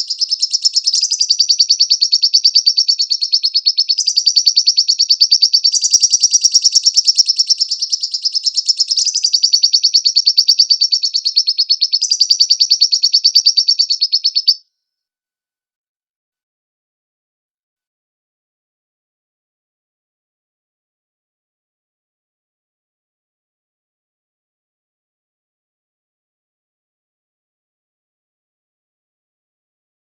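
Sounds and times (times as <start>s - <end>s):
lovebird chattering trill: 0.0s - 14.6s.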